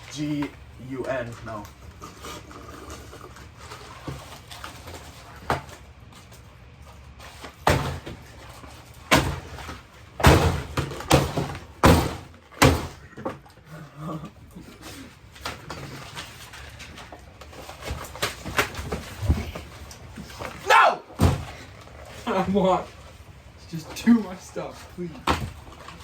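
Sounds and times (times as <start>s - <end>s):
loud knocks and bangs: 9.1s - 13.0s.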